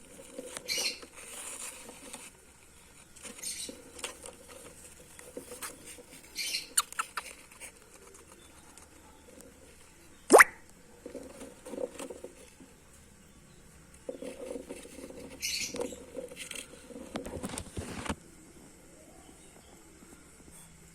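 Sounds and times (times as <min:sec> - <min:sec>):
cockatiel scratchy sounds: 0:00.0 - 0:10.2, 0:14.0 - 0:18.2.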